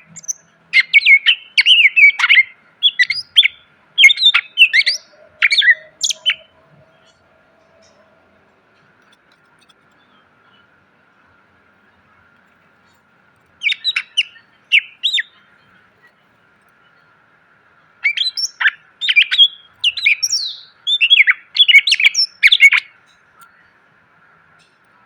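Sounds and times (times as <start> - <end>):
bird chirping and squawking: 0.0 - 7.0, 13.6 - 15.4, 18.0 - 22.8
faint steady hiss: 0.0 - 25.0.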